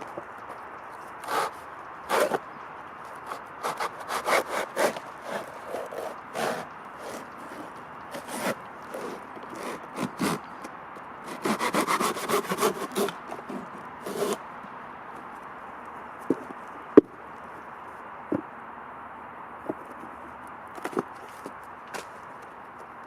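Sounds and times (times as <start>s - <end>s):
hand tool scraping wood: 1.1s - 2.4s, 3.1s - 10.7s, 11.3s - 14.4s.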